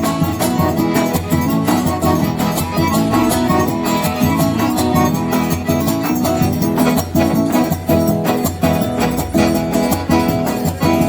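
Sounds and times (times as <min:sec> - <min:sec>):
melody line: 0:00.0 - 0:11.0
plucked strings: 0:00.0 - 0:11.0
steady percussion beat: 0:00.0 - 0:11.0.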